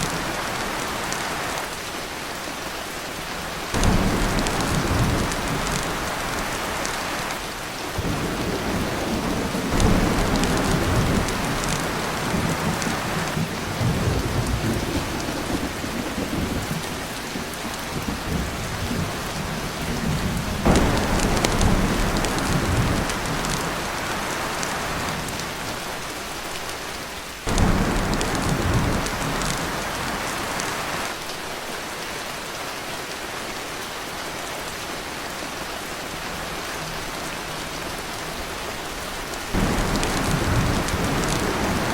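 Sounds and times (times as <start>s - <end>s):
rain on a tin roof: 0.0s - 41.9s
thunder rolling: 3.8s - 7.1s, 7.9s - 17.0s, 18.0s - 25.3s, 27.5s - 31.0s, 39.5s - 41.9s.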